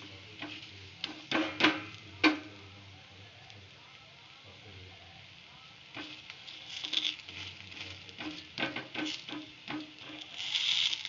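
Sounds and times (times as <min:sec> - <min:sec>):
flatbread sizzling in oil: 0:00.0 - 0:11.0
knocks and clicks on pan: 0:00.4 - 0:02.5, 0:08.2 - 0:10.2.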